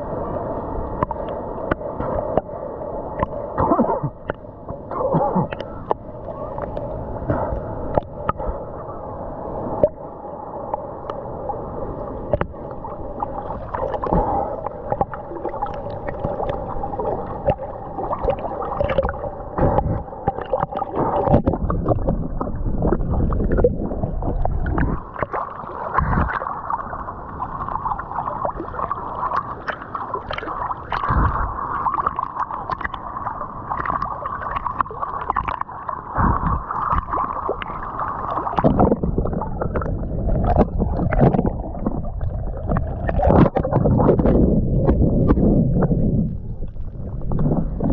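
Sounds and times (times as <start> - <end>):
water sloshing and gurgling: 0.0 - 47.9
water splashes and knocks: 12.3 - 12.6, 17.4 - 26.4, 29.3 - 33.0, 33.8 - 46.0.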